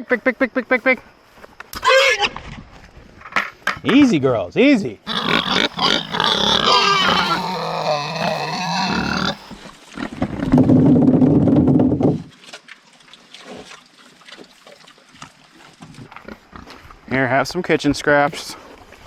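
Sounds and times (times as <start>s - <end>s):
pigs shuffling: 5.1s - 9.5s
pig drawn-out call: 5.1s - 9.6s
pigs squealing and grunting: 5.1s - 9.6s.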